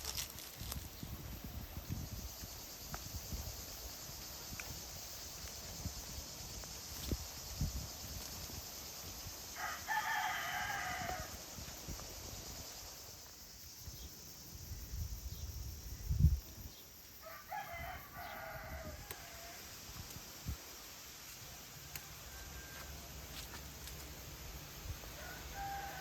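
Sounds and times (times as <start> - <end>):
rooster crowing: 9.6 - 11.4, 17.2 - 19.6, 22.2 - 23.1, 25.2 - 26.0.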